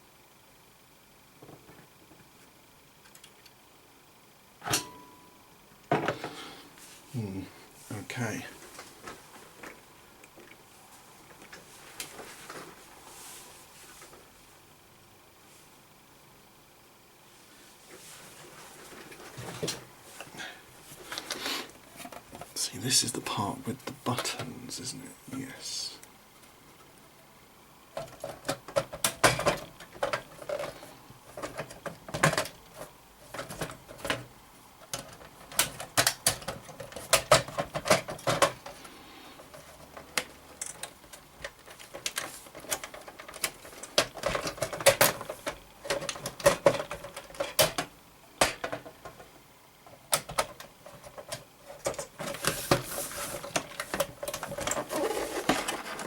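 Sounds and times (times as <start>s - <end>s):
small parts clicking and rattling: 28.0s - 49.3s.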